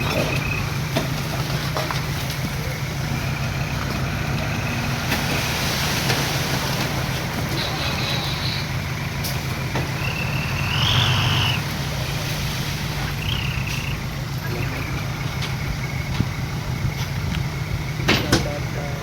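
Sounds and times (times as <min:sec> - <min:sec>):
heavy machinery diesel engine: 0:00.0 - 0:19.0
short high squeals: 0:07.5 - 0:09.0, 0:09.9 - 0:11.8.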